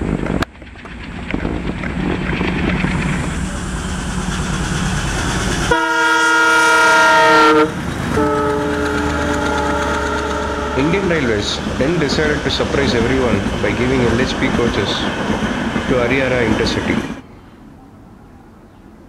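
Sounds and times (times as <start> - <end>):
train rumbling: 0.0 - 19.0
lower-pitched horn blast: 5.6 - 12.2
locomotive horn blast: 5.7 - 11.7.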